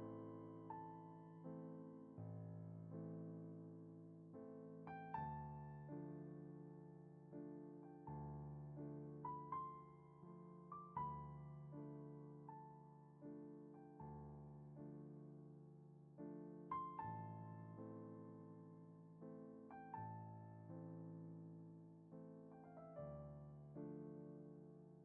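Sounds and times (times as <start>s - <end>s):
slow soft solo piano: 0.0s - 25.0s.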